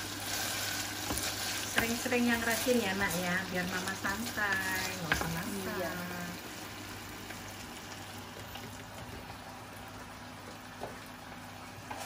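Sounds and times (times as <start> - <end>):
chicken sizzling in a saucepan: 0.0 - 12.0.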